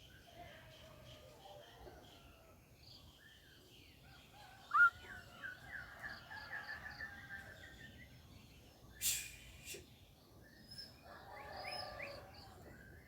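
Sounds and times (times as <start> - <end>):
bird singing chirps: 4.6 - 5.9.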